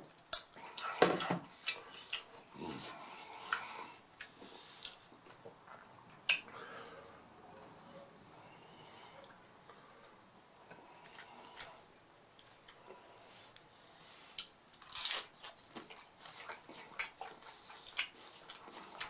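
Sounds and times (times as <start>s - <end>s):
taco shells crunching: 14.4s - 19.0s.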